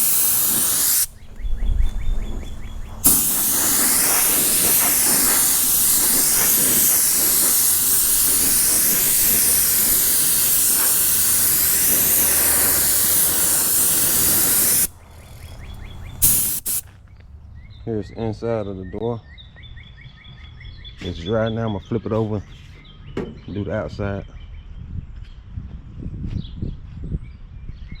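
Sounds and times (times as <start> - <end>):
spray gun hissing: 0.0 - 1.3, 3.0 - 16.8.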